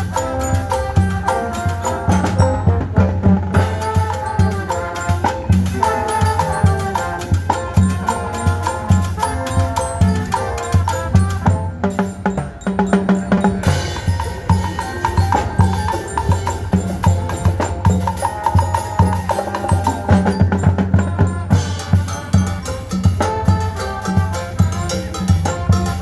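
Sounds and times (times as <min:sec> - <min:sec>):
fast drum beat: 0:00.0 - 0:26.0
pitched melody: 0:00.0 - 0:26.0.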